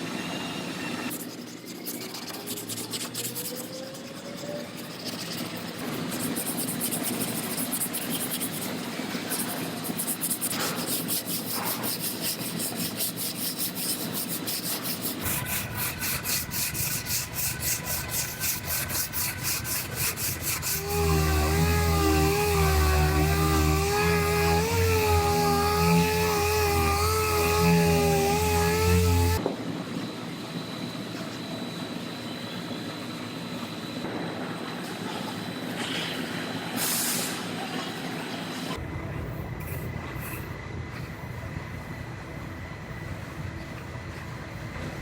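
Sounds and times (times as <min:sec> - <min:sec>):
sanding block rubbing: 0:01.1 - 0:29.4
wavering hum: 0:15.2 - 0:29.4.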